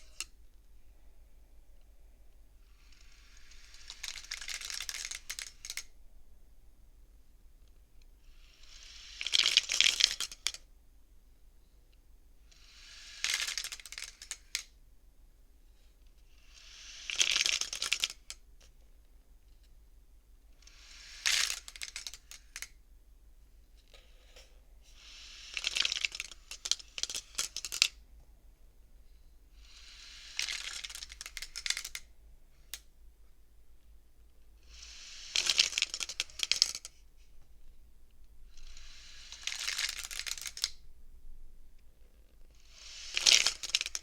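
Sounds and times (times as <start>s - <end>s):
wooden beads clattering and clicking: 0.0s - 0.3s, 2.9s - 5.9s, 9.1s - 10.6s, 12.9s - 14.7s, 17.0s - 18.4s, 21.0s - 22.8s, 25.4s - 28.0s, 30.1s - 32.1s, 35.1s - 37.0s, 38.6s - 40.8s, 42.7s - 44.0s.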